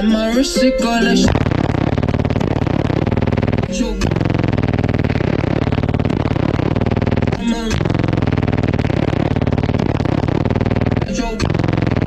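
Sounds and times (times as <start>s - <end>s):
rap music with heavy bass: 0.0s - 12.0s.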